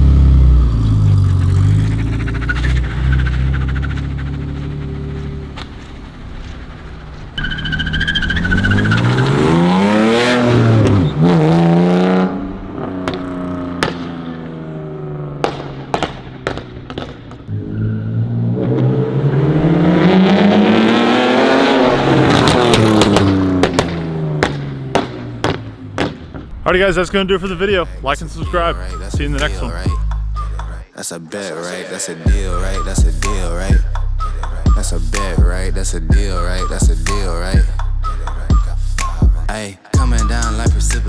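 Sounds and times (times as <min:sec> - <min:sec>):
exhaust crackles and pops: 0:00.0 - 0:09.5, 0:12.5 - 0:17.5, 0:22.2 - 0:30.2
car engine revving: 0:00.0 - 0:30.9, 0:32.2 - 0:41.0.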